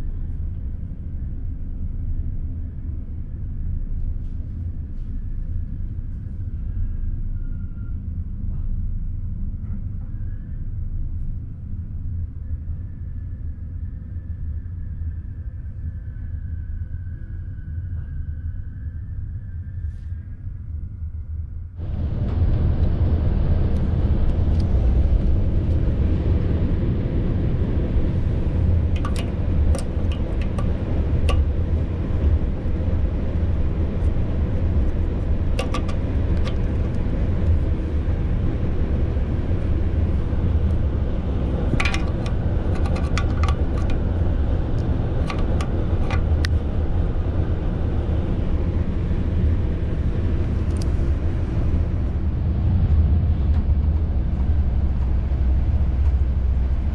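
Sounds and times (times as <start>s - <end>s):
train carriage rumbling: 21.8s - 56.9s
sharp clicks and rattles: 28.1s - 32.9s, 34.0s - 38.6s, 40.1s - 46.7s.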